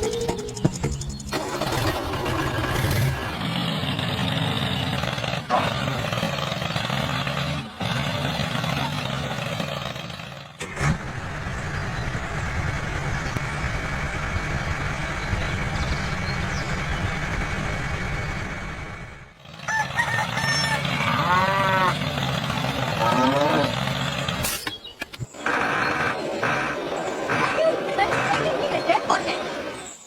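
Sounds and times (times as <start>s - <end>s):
low mechanical rumble: 10.6s - 19.4s
pitched animal calls: 22.8s - 23.9s.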